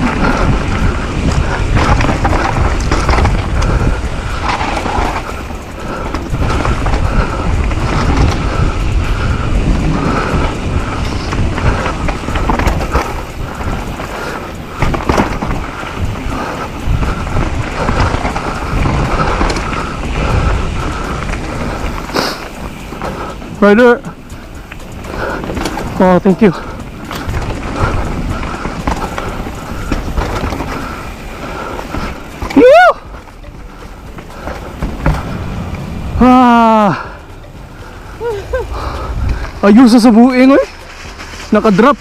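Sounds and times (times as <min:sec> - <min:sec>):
bike knocks and rattles: 0:00.0 - 0:36.8
tyres on dirt: 0:00.0 - 0:42.0
wind buffeting microphone: 0:00.0 - 0:42.0.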